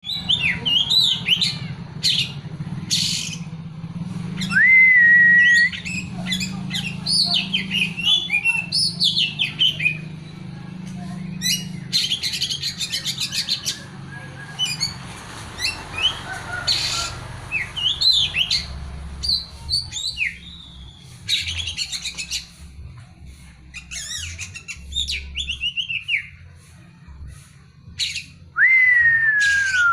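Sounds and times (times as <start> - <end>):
songbird whistles and chirps: 4.4 - 10.1, 16.8 - 22.6, 23.7 - 26.4, 27.9 - 29.9.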